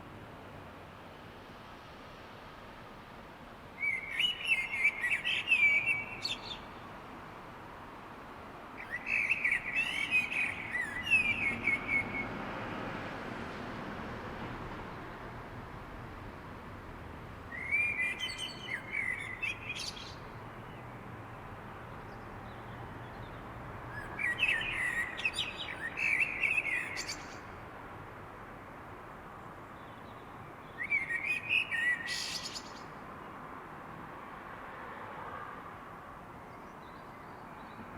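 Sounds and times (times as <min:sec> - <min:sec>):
steady background hiss: 0:00.0 - 0:37.9
songbird singing: 0:03.8 - 0:07.0, 0:08.8 - 0:12.4, 0:17.5 - 0:27.6, 0:29.4 - 0:33.4, 0:36.4 - 0:37.9.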